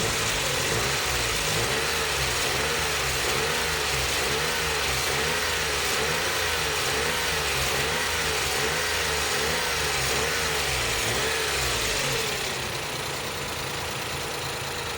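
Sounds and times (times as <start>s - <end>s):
van engine idling with wavering whine: 0.0s - 14.9s.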